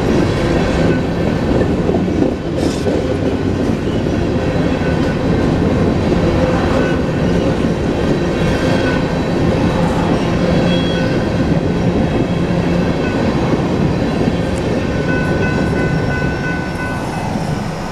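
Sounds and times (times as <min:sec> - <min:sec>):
train wheels rumbling on rails: 0:00.0 - 0:17.9
high wheel squeal: 0:06.8 - 0:11.3.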